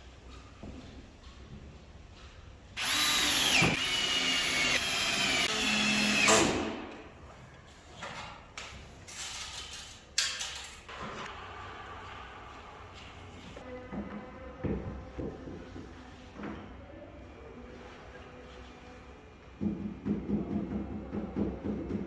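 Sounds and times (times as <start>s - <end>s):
power drill whining: 2.8s - 6.4s.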